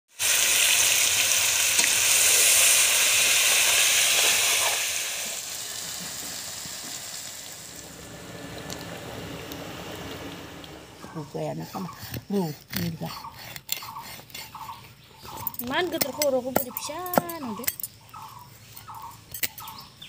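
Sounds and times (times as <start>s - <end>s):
fish and onion frying in oil: 0.1s - 10.6s.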